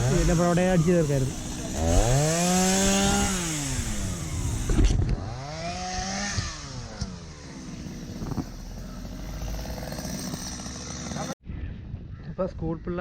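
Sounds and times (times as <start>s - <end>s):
chainsaw engine revving: 0.0s - 11.4s.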